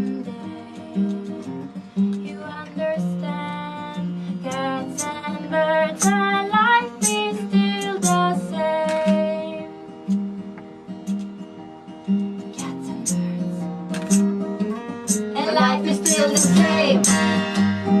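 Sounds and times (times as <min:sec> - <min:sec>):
acoustic guitar strumming: 0:00.0 - 0:18.0
person singing high melody: 0:15.4 - 0:17.4.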